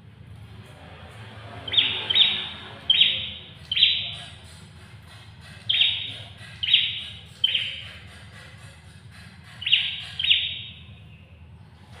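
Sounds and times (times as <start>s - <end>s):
bird sharp call notes: 1.7s - 4.2s, 5.7s - 7.9s, 9.6s - 10.9s.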